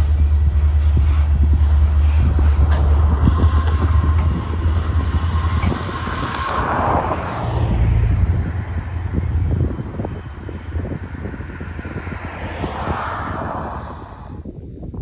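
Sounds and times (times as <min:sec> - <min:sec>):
train rumbling past: 0:00.0 - 0:14.4.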